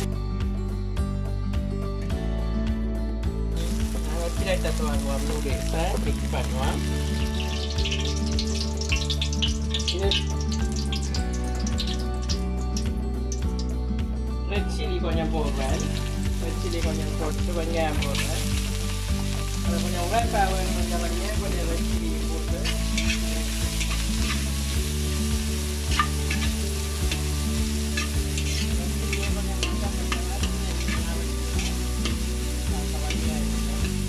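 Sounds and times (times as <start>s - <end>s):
chillies and onions sizzling in oil: 3.6s - 34.0s
metal spatula scraping wok: 22.6s - 25.2s, 25.8s - 34.0s.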